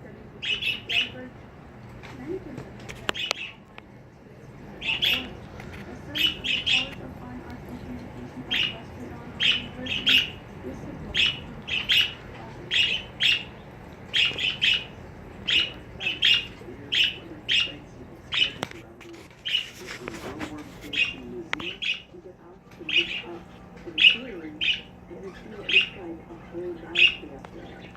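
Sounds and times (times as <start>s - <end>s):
bird chirping: 0.4s - 1.2s, 3.1s - 3.6s, 4.8s - 5.4s, 6.1s - 7.0s, 8.4s - 18.6s, 22.8s - 27.9s.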